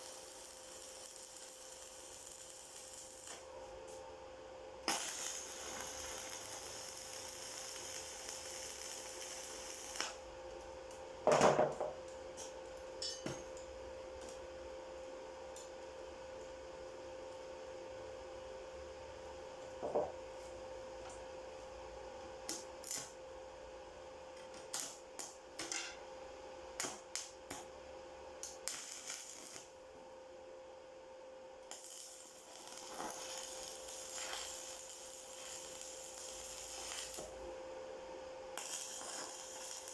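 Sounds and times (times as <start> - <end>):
welding hiss: 0.0 - 4.0, 4.8 - 10.2, 28.4 - 29.8, 31.7 - 37.4, 38.6 - 39.9
steady electrical hum: 0.0 - 39.9.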